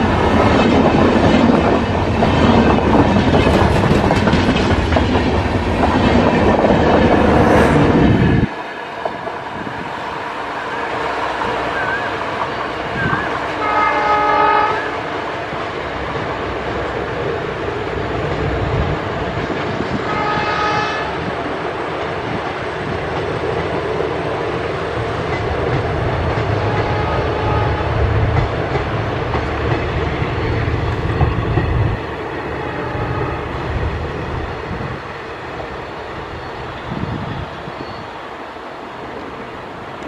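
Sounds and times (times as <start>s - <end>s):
train wheels rumbling on rails: 0.0s - 40.0s
train horn blasts: 12.9s - 15.2s, 20.1s - 21.3s, 26.6s - 28.2s, 32.6s - 33.6s.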